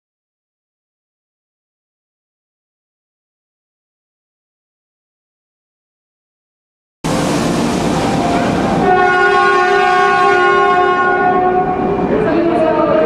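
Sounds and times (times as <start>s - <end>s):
steady train horn: 7.1s - 13.0s
train pulling into station rushing: 7.1s - 13.0s.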